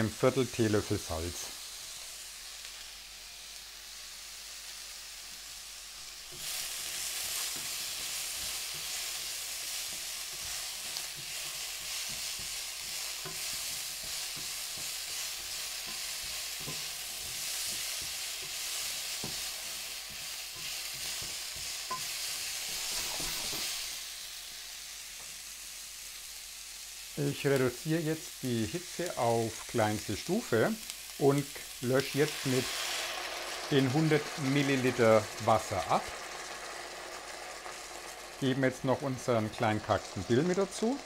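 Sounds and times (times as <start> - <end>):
vegetables sizzling in frying pan: 0.0 - 41.0
spatula scraping pan: 6.3 - 23.9.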